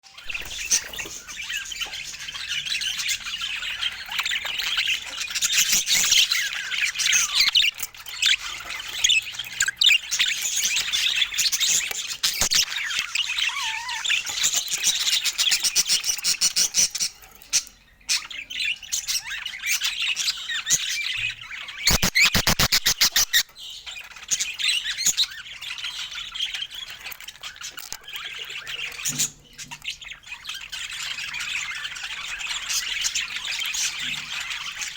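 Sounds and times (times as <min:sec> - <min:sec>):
budgerigars chattering and warbling: 0:00.1 - 0:34.9
sharp bird squawks: 0:21.9 - 0:23.5.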